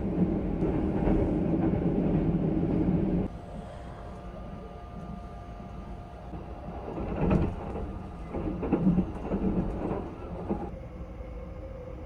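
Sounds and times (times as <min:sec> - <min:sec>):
train wheels rumbling on rails: 0:00.0 - 0:03.3, 0:04.6 - 0:10.8.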